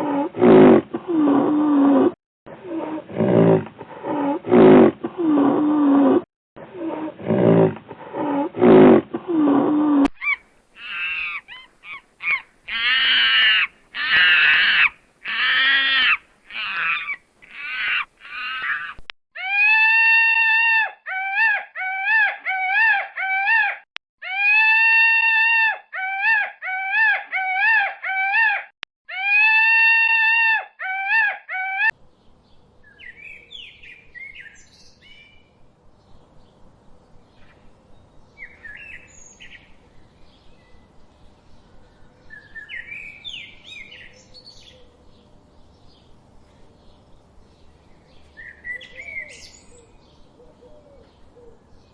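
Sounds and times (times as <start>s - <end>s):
harsh loud animal calls: 6.8s - 32.0s.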